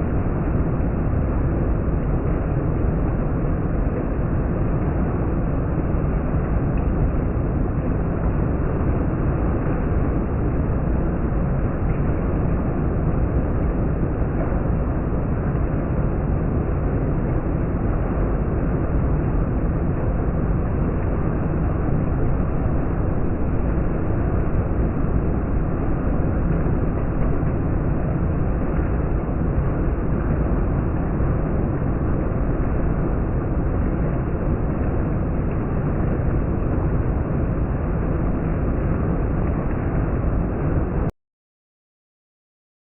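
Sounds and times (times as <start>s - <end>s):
heavy rain falling: 0.0s - 41.1s.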